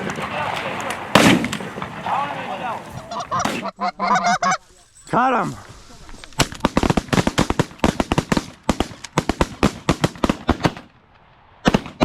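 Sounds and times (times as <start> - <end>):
shotgun shots: 0.0 - 3.7, 6.5 - 10.9, 11.6 - 12.0.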